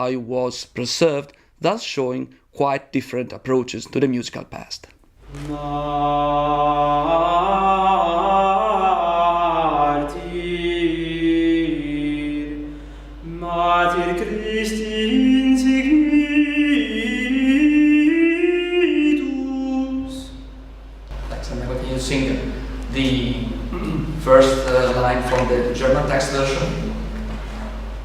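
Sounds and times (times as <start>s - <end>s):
unaccompanied voices singing in parts: 5.2s - 20.6s.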